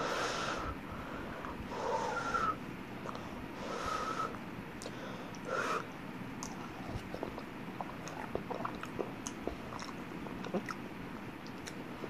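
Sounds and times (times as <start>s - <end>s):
person chewing food: 6.4s - 12.0s.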